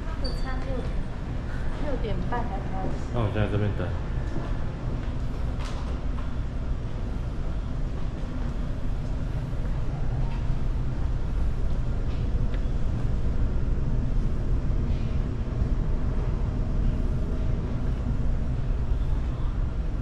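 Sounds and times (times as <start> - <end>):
ferry engine rumble: 0.0 - 20.0.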